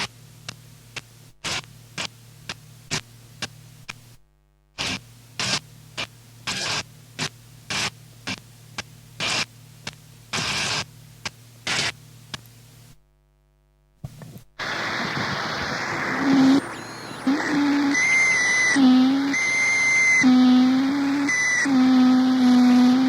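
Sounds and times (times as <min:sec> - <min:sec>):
bursts of static and hiss: 0:00.0 - 0:04.2, 0:04.8 - 0:13.0, 0:14.0 - 0:23.0
continuous wall of static: 0:00.0 - 0:23.0
low hum: 0:14.6 - 0:23.0.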